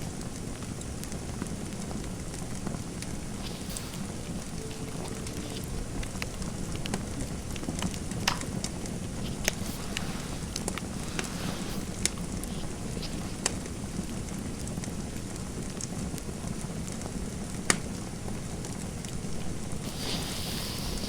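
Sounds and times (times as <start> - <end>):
fireplace fire crackling: 0.0 - 21.0
soft hiss: 2.1 - 14.5, 19.0 - 21.0.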